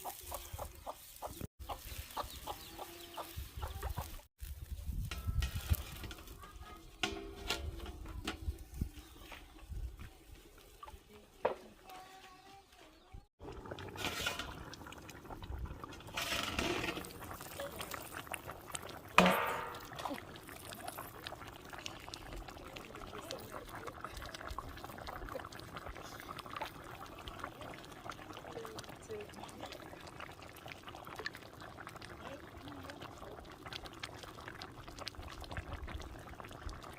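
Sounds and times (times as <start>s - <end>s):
liquid pouring and splashing: 13.4s - 36.9s.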